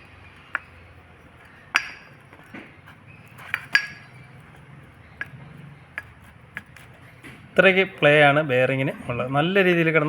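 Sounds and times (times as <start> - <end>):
sharp metallic clinks: 3.4 - 4.4.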